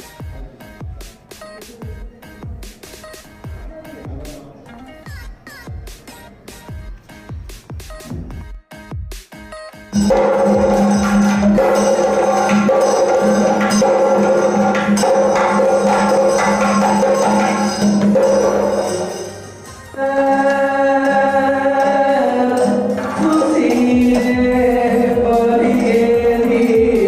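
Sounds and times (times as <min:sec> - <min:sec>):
percussion strikes: 0:09.9 - 0:27.0.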